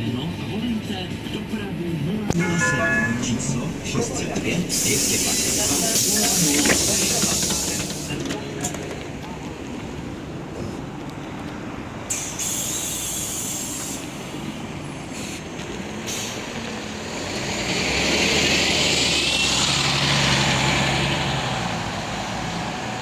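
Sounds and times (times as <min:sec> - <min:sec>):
bus diesel engine whining: 0:00.0 - 0:23.0
compressed air hiss: 0:04.6 - 0:08.2, 0:12.1 - 0:14.5.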